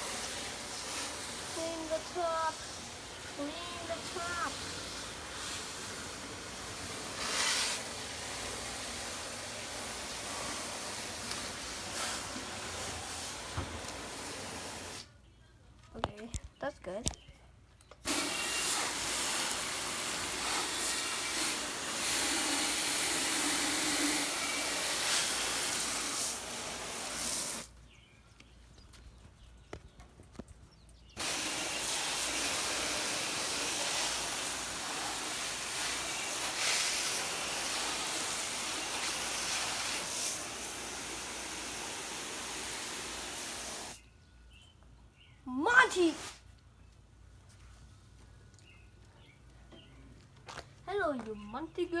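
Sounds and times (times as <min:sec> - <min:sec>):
water spraying from hose nozzle: 0:00.0 - 0:15.1, 0:18.0 - 0:27.7, 0:31.2 - 0:44.0, 0:45.6 - 0:46.5.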